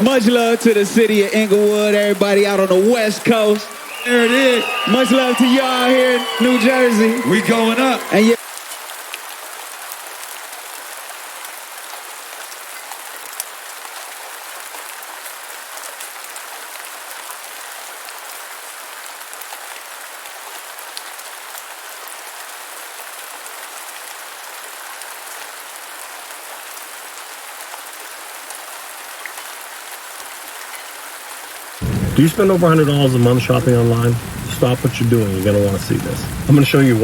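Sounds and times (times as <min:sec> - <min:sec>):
steady rain hiss: 0:00.0 - 0:37.0.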